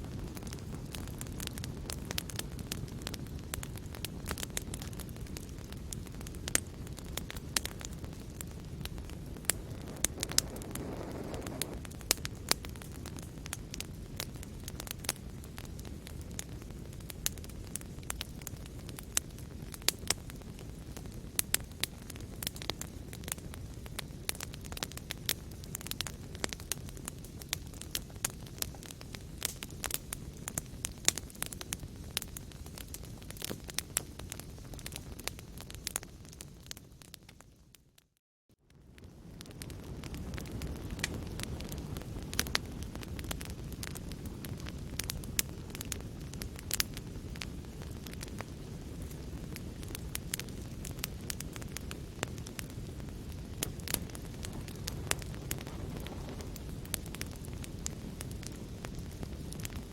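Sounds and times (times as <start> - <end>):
fire popping and snapping: 0.0 - 59.9
low rumble of flames: 0.0 - 59.9
rushing flame noise: 0.1 - 17.8, 51.4 - 59.8.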